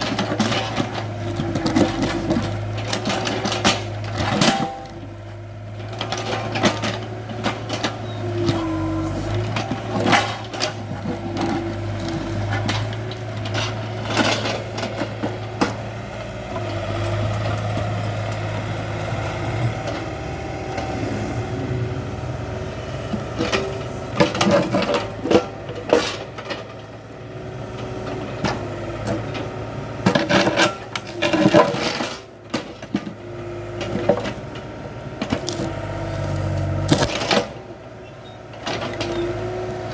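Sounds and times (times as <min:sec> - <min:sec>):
excavator bucket knocking and clattering: 0:00.0 - 0:18.0, 0:23.0 - 0:26.9, 0:38.4 - 0:39.9
excavator diesel engine running: 0:00.0 - 0:39.9.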